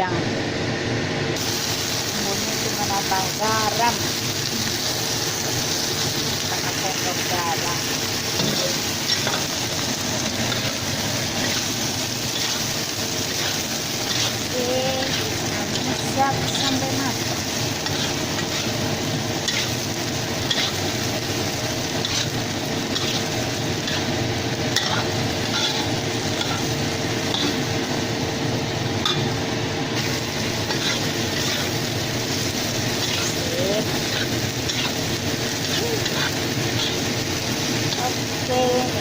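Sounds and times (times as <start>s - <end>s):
vegetables sizzling in a hot pan: 0.0s - 39.0s
spatula scraping the pan: 10.4s - 17.0s, 17.8s - 19.8s, 20.4s - 20.9s, 22.0s - 26.7s, 30.6s - 31.8s, 32.9s - 35.0s, 35.6s - 37.1s.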